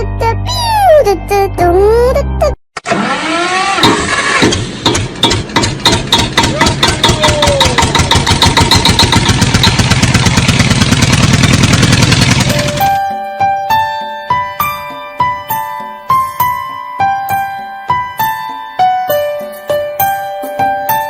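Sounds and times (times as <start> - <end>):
engine chugging: 3.2 - 13.0.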